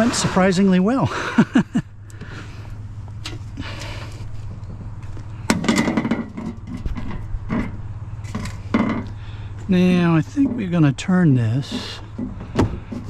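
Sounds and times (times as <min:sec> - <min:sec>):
steady low hum: 0:00.0 - 0:13.0
scrap metal clatter: 0:05.4 - 0:09.2.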